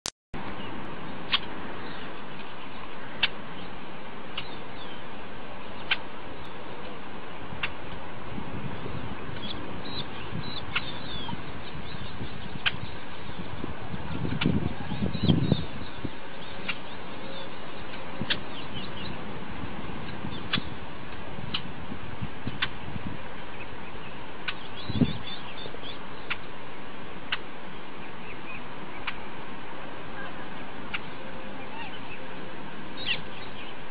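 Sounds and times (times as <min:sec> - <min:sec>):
microphone hiss: 0:00.4 - 0:33.9
sharp bird chirps: 0:24.5 - 0:26.4.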